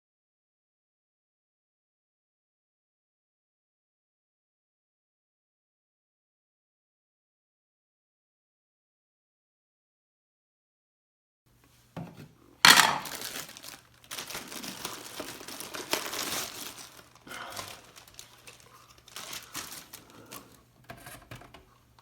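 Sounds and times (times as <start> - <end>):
packaging crinkling and rustling: 12.7 - 21.7
sharp crackle: 13.0 - 20.4.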